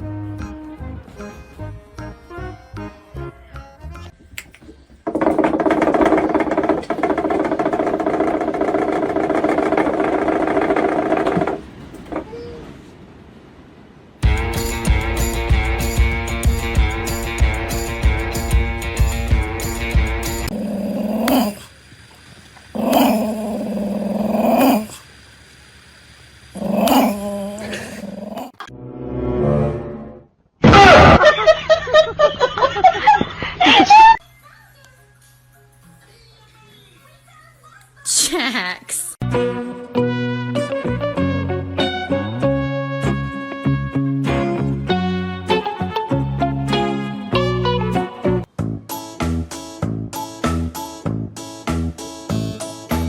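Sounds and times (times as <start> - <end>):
dog howling calls: 20.5 - 21.7, 22.8 - 25.0, 26.6 - 28.7.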